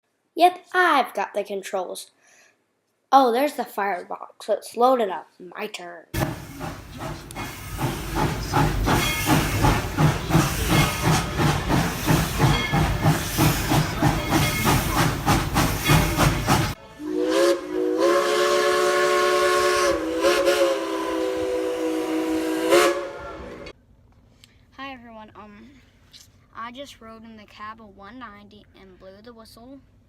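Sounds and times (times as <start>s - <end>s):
hissing steam: 6.2s - 23.7s
steam locomotive exhaust chuffs: 6.2s - 23.8s
chime steam whistle blast: 15.7s - 23.7s.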